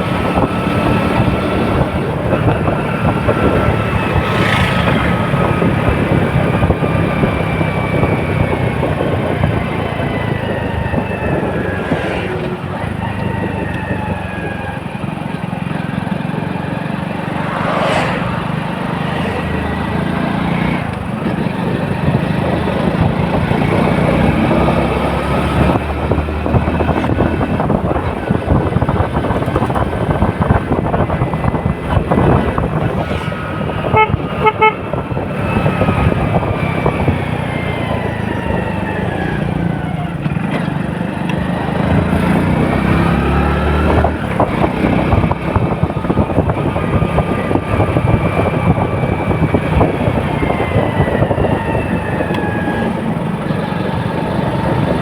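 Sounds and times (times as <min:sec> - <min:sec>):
vehicles passing by: 0:00.0 - 0:55.0
car horn toots: 0:33.7 - 0:35.2.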